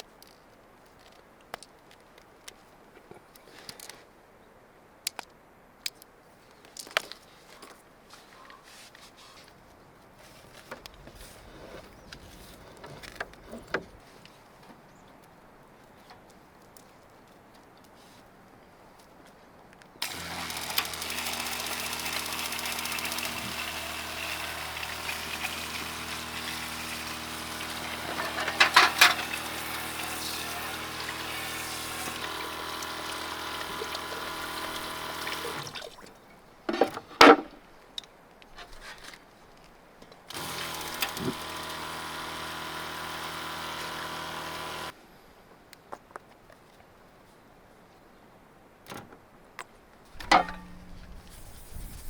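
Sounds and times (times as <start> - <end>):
water pump humming: 20.0 - 36.1, 40.3 - 45.0, 50.2 - 51.3
water flowing: 20.0 - 36.2.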